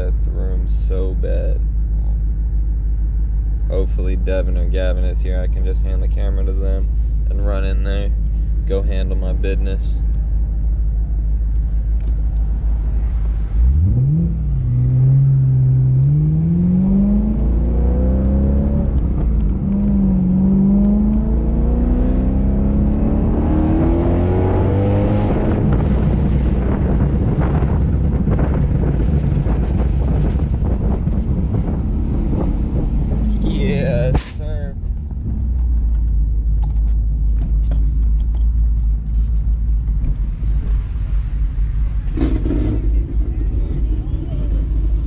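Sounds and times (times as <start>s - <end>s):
car engine accelerating through gears: 12.0s - 34.2s, 40.1s - 45.0s.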